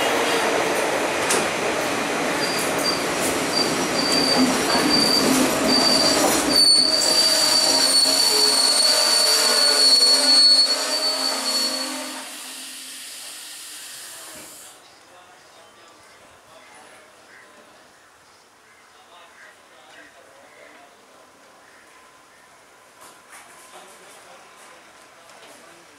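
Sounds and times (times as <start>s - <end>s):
train rolling rumble: 0.0s - 11.5s
high squeal of wheels and brakes: 2.4s - 12.5s.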